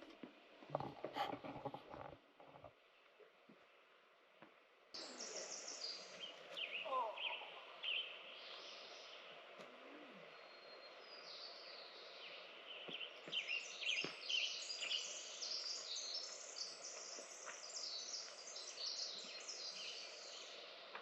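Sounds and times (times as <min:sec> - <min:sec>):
steady background hiss: 0:02.8 - 0:21.0.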